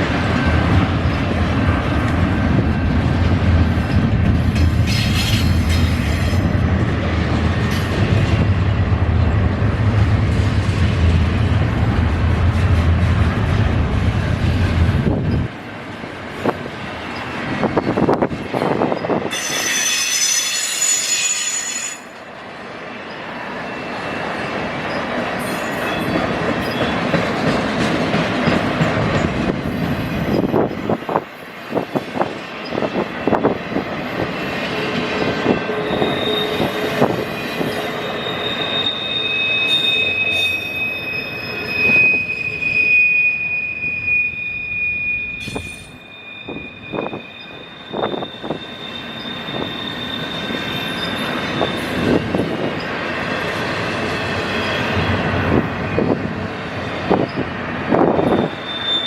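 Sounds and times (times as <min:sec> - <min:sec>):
train cars rolling past: 0:00.0 - 0:59.0
high wheel squeal: 0:18.9 - 0:22.1, 0:34.2 - 0:52.4, 0:58.0 - 0:59.0
wheels clacking over rail joints: 0:24.2 - 0:31.3.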